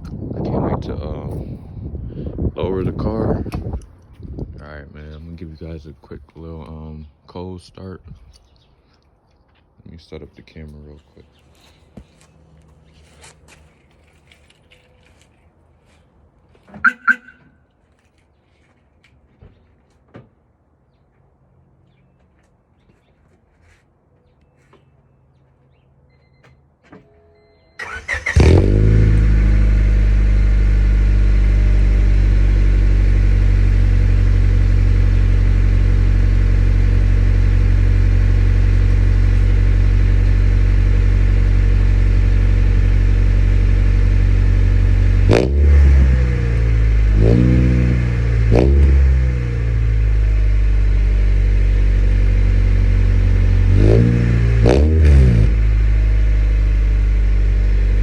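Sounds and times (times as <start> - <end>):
car engine idling: 16.8 - 17.5, 27.8 - 58.0
engine throttle blips: 16.8 - 17.6, 27.8 - 58.0
car engine cranking: 27.8 - 58.0.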